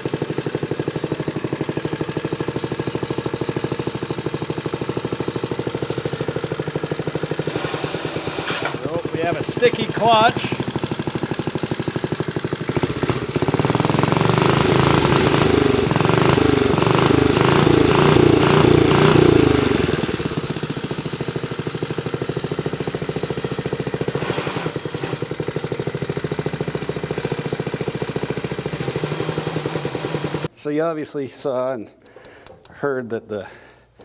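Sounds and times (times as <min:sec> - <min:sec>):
small engine revving and idling: 0:00.0 - 0:30.5
clutch chattering: 0:04.3 - 0:30.5.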